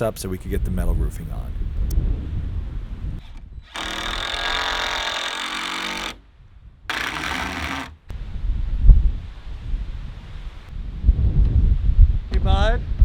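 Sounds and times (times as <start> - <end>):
wind buffeting microphone: 0.0 - 4.3, 8.1 - 13.0
power tool motor running: 3.7 - 6.2, 6.9 - 8.1.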